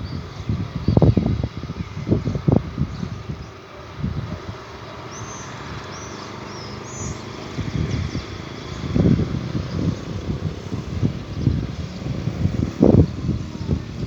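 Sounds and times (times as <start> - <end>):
wind buffeting microphone: 0.0 - 14.0
bird chirping: 4.8 - 14.0.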